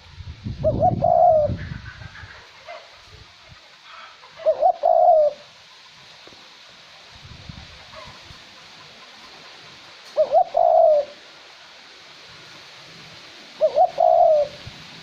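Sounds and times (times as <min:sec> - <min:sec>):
wind rumbling on microphone: 0:00.0 - 0:03.6, 0:07.1 - 0:08.4
dove cooing: 0:00.6 - 0:02.8, 0:03.9 - 0:05.5, 0:10.1 - 0:11.3, 0:13.6 - 0:14.7.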